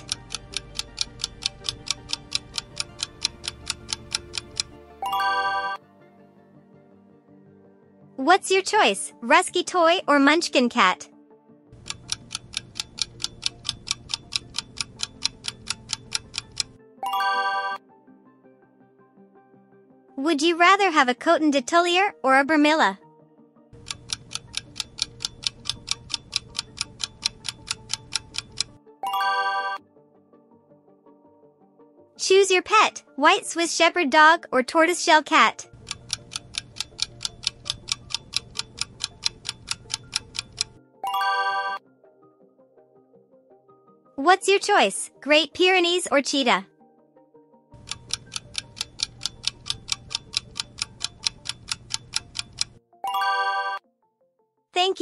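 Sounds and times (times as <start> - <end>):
clock ticking: 0.0 - 5.8, 11.8 - 16.8, 23.8 - 28.8, 35.3 - 41.8, 47.8 - 52.8
faint background music: 0.0 - 18.5, 19.6 - 53.8, 54.8 - 55.0.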